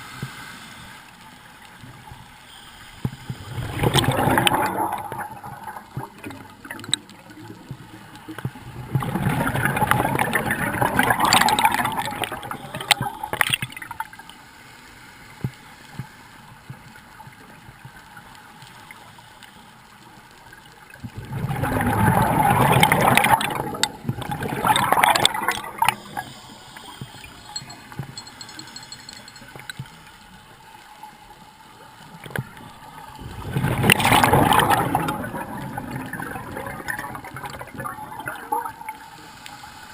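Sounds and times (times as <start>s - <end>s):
underwater water noise: 0.0s - 39.9s
diver's bubbles gurgling underwater: 3.4s - 14.0s, 21.0s - 26.4s, 33.2s - 38.9s.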